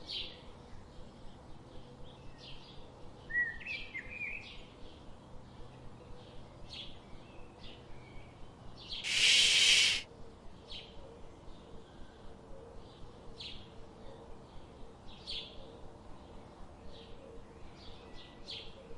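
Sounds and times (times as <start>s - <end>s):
birds chirping: 9.1s - 10.0s
loud rushing burst of noise: 9.1s - 10.0s.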